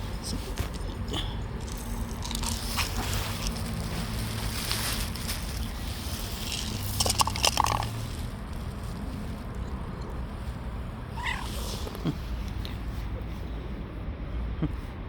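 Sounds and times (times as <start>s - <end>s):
steady low rumble: 0.0s - 15.0s
cat crunching dry food: 0.6s - 12.6s
cat mewing: 11.0s - 12.3s.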